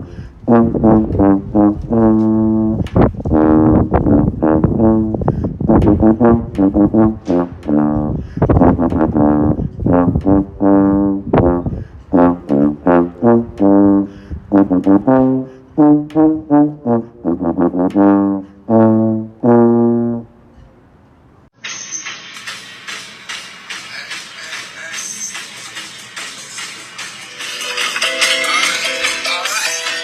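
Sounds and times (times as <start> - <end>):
solo brass melody: 0.0 - 20.5.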